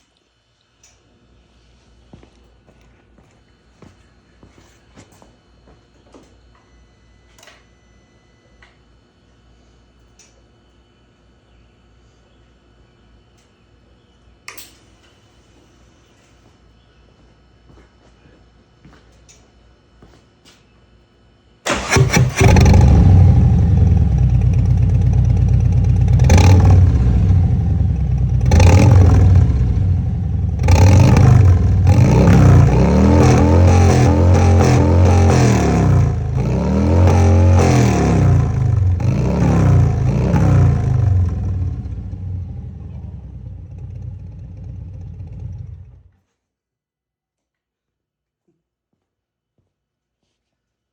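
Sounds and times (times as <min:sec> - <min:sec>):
motorcycle engine revving: 0:21.7 - 0:46.1.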